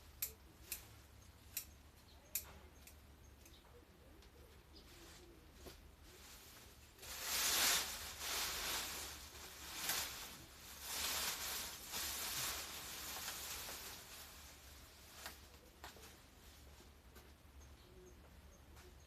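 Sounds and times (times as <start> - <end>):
leaves and brush rustling: 4.4 - 17.2.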